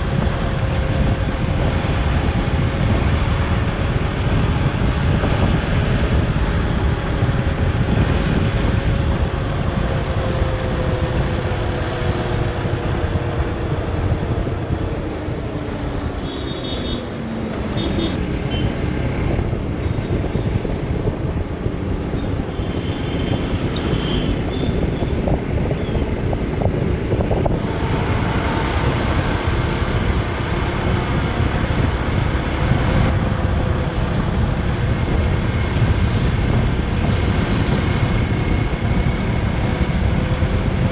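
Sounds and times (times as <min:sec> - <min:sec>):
wind rush on microphone: 0:00.0 - 0:40.9
motorcycle engine running: 0:13.0 - 0:19.8.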